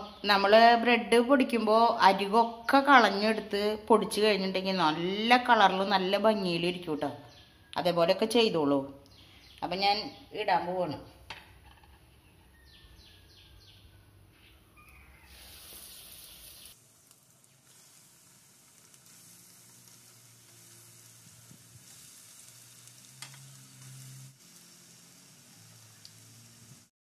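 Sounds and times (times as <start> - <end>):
food sizzling in oil: 14.8 - 26.9.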